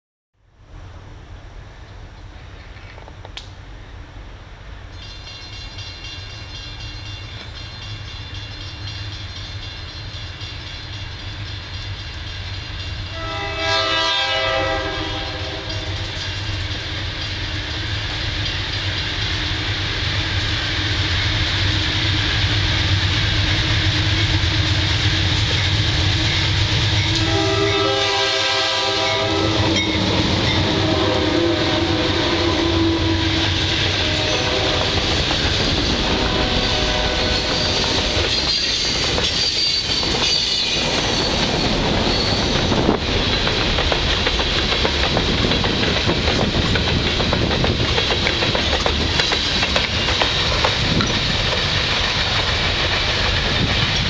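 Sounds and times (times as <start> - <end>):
diesel locomotive engines rumbling: 0.5 - 54.0
wheel and rail clatter: 4.9 - 13.1, 37.3 - 54.0
train air horn: 13.1 - 16.1, 27.1 - 35.3, 36.0 - 38.2.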